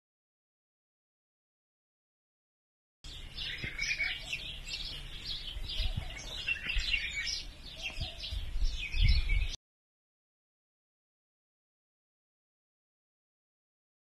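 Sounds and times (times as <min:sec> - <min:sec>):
small birds chirping: 0:03.0 - 0:09.6.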